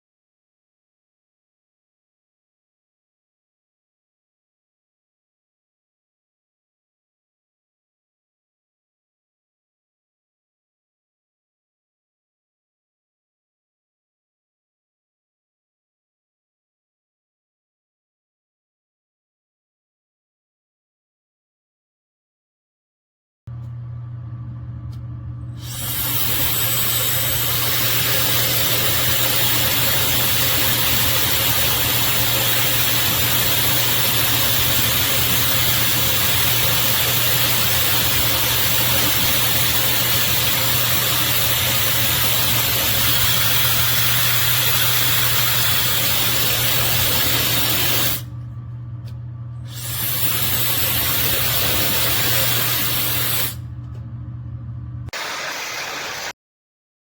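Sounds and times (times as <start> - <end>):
hair dryer blowing: 25.6 - 48.3, 49.7 - 53.6, 55.2 - 56.4.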